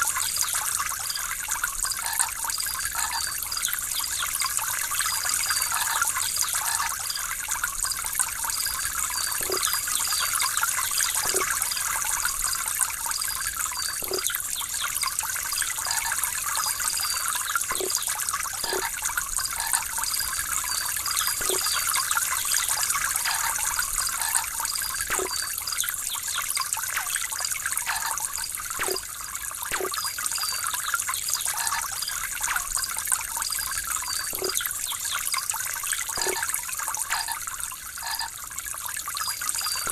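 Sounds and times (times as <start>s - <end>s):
water trickling: 0.0s - 39.9s
water drops plinking: 8.0s - 15.0s, 16.8s - 35.1s, 36.1s - 37.4s, 39.2s - 39.9s.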